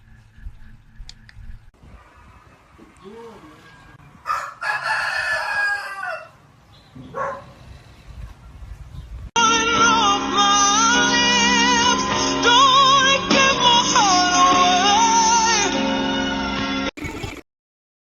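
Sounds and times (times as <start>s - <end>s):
rooster crowing: 3.8s - 6.4s.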